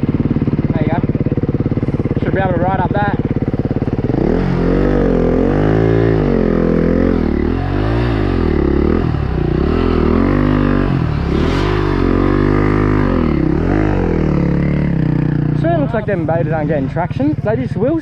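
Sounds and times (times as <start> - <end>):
dirt bike engine revving: 0.0 - 18.0
motorbike idling: 0.0 - 18.0.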